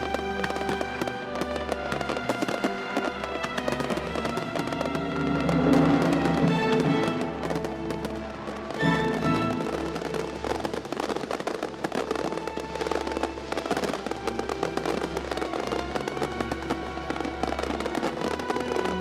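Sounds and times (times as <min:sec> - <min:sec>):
background music: 0:00.0 - 0:19.0
fireworks crackling and popping: 0:00.0 - 0:19.0.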